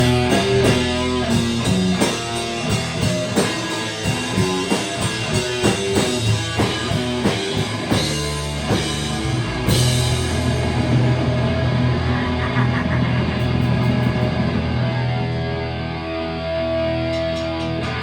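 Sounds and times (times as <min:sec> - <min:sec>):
rock band playing: 0:00.0 - 0:18.0.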